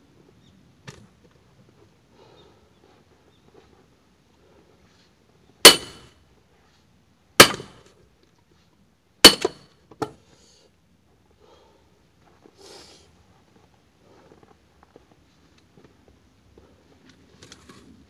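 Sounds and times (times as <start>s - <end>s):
axe chopping firewood: 5.6s - 6.1s, 7.4s - 7.9s, 9.2s - 10.2s.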